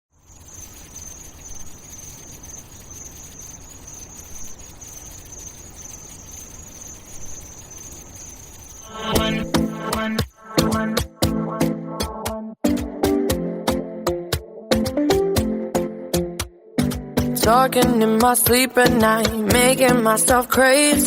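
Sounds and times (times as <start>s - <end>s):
faint low hiss: 0.2s - 10.8s
high-pitched trill: 0.2s - 11.8s
music with a beat: 8.9s - 21.0s.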